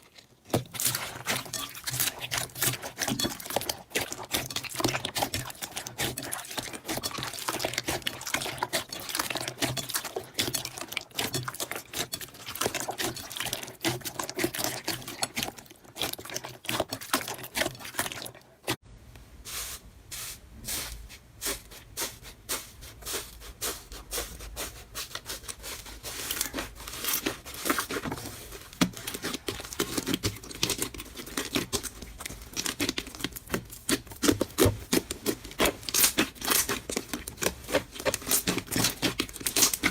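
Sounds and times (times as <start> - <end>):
slime crackling and popping: 28.8 - 39.9.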